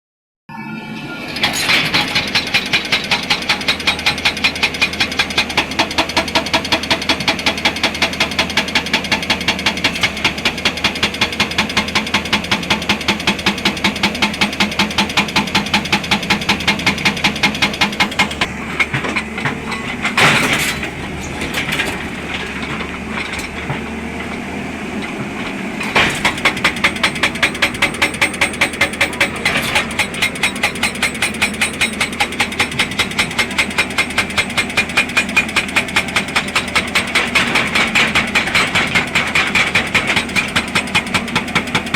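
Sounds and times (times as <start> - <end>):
engine running: 0.8 - 41.9
hydraulic rock breaker hammering: 1.3 - 41.9
loud metal clank: 18.2 - 24.4, 25.0 - 40.7.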